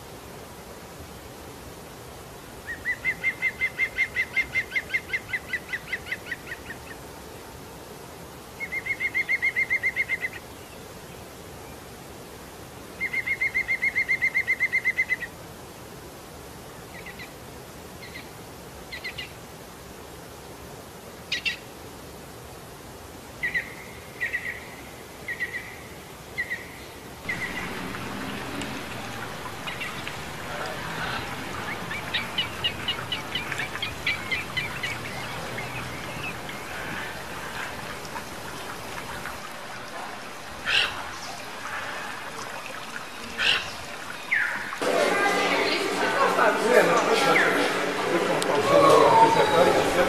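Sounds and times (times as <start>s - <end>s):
bird trilling and calling: 27.3s - 44.8s.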